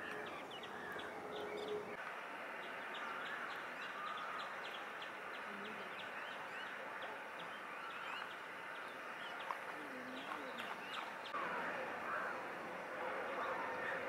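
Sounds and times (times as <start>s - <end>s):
steady outdoor background hiss: 0.0s - 14.0s
small birds chirping: 2.6s - 11.4s.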